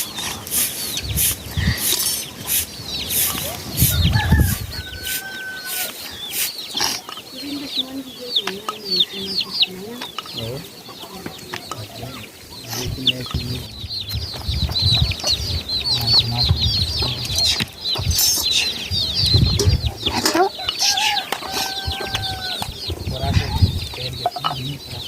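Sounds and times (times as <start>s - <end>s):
chickens calling: 0.0s - 25.0s
low knocks and bumps: 12.8s - 18.2s.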